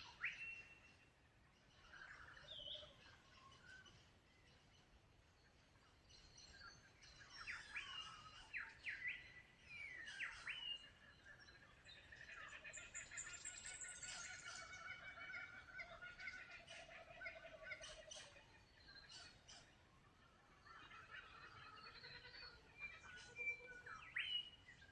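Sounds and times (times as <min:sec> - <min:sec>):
faint birdsong: 0:00.0 - 0:24.9.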